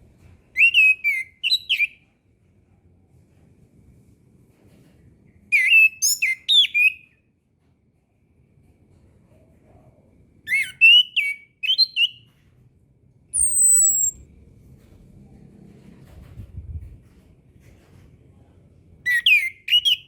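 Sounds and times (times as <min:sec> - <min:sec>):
thin high falling whistle: 0:13.4 - 0:14.2
thrush singing whistled notes: 0:13.4 - 0:14.2.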